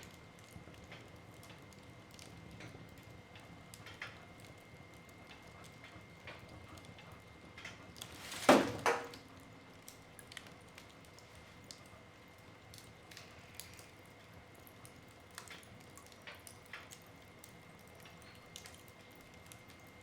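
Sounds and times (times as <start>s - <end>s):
wood fire crackling: 7.9s - 18.6s
sharp loud crack of logs: 8.1s - 9.2s.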